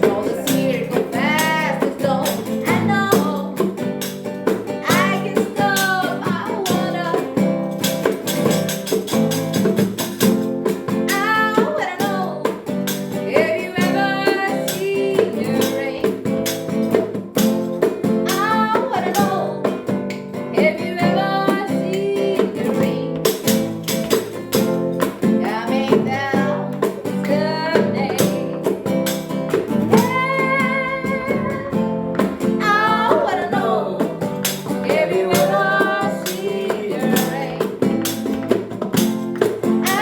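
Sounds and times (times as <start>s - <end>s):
person singing: 0.0s - 3.8s, 4.8s - 7.5s, 11.1s - 16.4s, 18.3s - 19.9s, 20.5s - 23.5s, 25.2s - 29.0s, 29.6s - 38.2s, 39.8s - 40.0s
acoustic guitar strumming: 0.0s - 40.0s.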